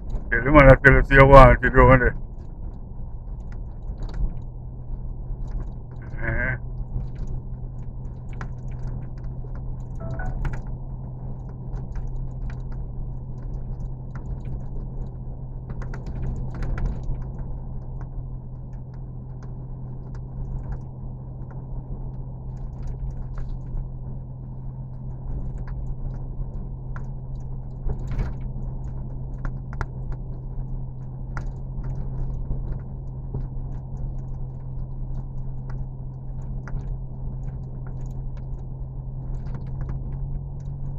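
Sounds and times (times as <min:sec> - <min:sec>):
low machine hum: 0:00.0 - 0:40.9
small clicks and taps: 0:25.3 - 0:38.7.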